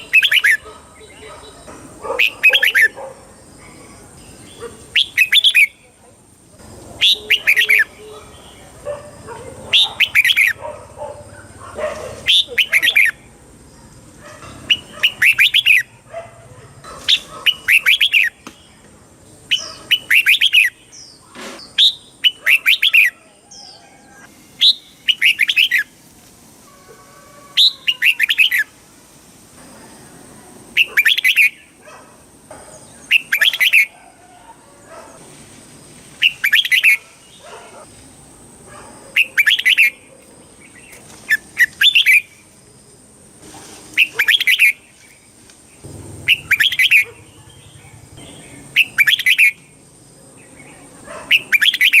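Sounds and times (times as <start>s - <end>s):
bird warbling: 0.0s - 3.0s, 7.0s - 8.6s, 9.7s - 10.6s, 26.6s - 28.7s, 45.8s - 49.6s.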